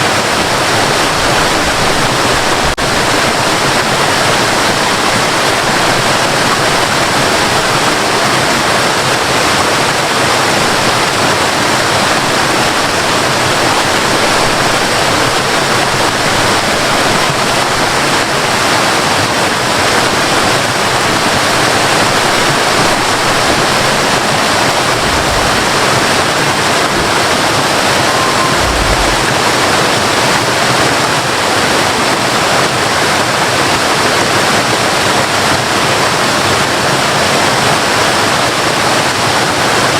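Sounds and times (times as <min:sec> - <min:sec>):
waterfall splashing: 0:00.0 - 0:39.9
low thumps: 0:22.7 - 0:30.2.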